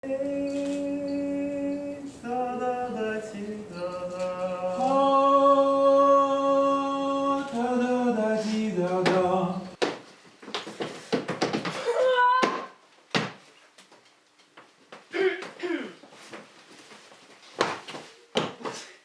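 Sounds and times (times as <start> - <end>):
person singing unaccompanied: 0.0 - 9.8.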